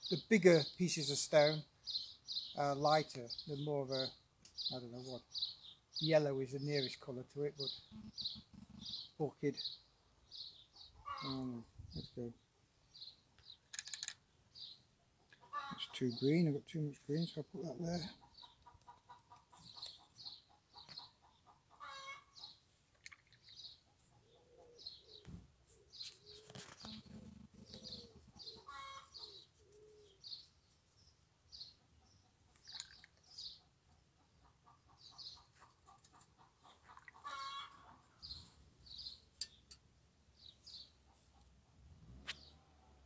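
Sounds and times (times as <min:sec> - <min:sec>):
lower bird calls: 0:03.3 - 0:12.4, 0:23.2 - 0:30.5.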